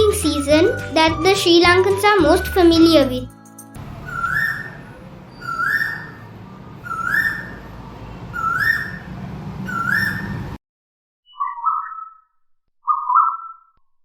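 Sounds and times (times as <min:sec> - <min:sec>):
bird rising whistled call: 0:03.9 - 0:06.2, 0:06.8 - 0:07.6, 0:08.3 - 0:10.4, 0:11.3 - 0:12.3, 0:12.9 - 0:13.7.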